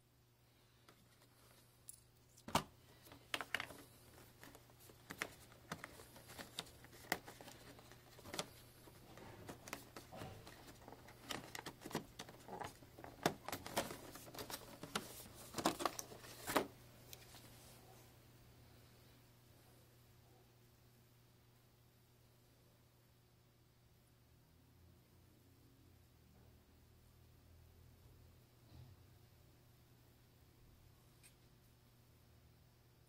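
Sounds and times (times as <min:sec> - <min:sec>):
packaging clicks and taps: 0:00.9 - 0:17.2.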